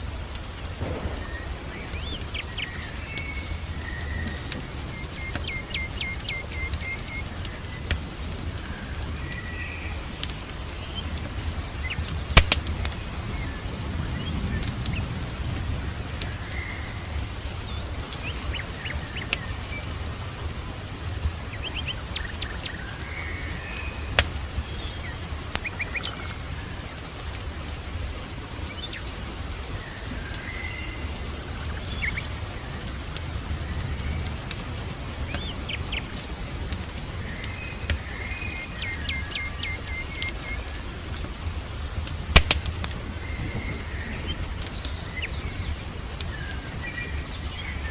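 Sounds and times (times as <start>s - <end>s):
fireplace crackling and popping: 0.0s - 47.9s
songbirds chirping: 0.0s - 47.9s
steady low rumble: 0.1s - 4.1s.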